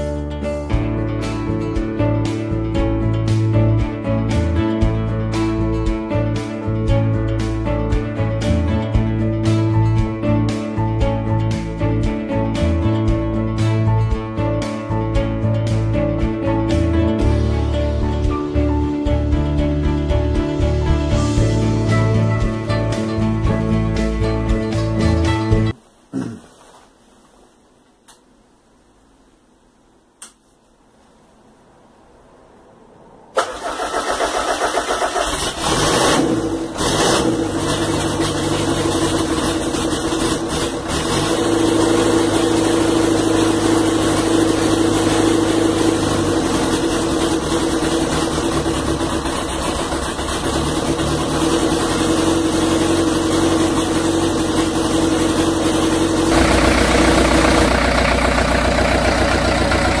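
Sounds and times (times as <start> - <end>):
diesel engine starting and running: 32.8 - 60.0.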